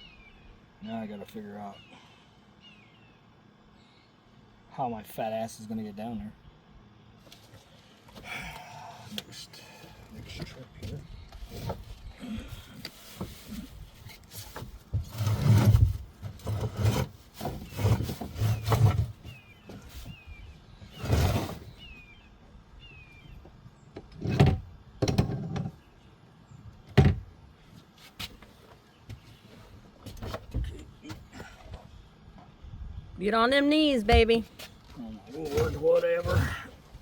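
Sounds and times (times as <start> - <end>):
thumps and knocks inside boat hull: 13.1 - 20.1, 24.0 - 25.8, 26.9 - 27.3, 30.0 - 31.2.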